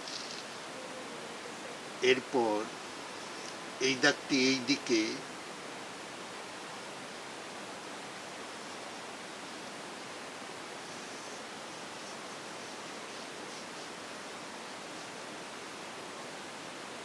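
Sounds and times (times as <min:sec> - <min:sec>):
faint scratchy sounds: 0:00.0 - 0:05.4
background hiss: 0:00.0 - 0:17.0.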